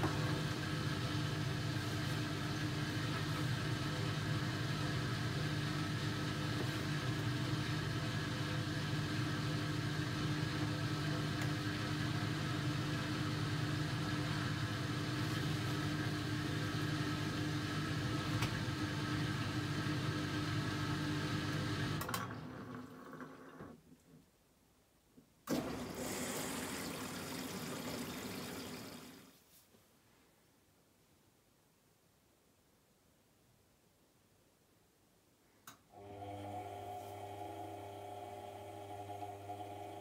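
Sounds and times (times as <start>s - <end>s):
washing machine motor hum: 0.0s - 23.8s, 25.5s - 29.4s, 35.9s - 40.0s.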